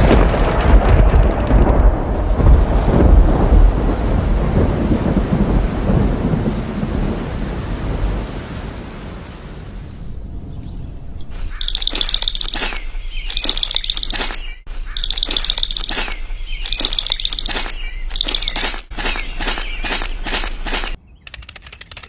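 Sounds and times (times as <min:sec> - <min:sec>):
thunder rumbling: 0:00.0 - 0:11.6
rain hiss: 0:02.1 - 0:10.2
high chirping: 0:10.4 - 0:20.3.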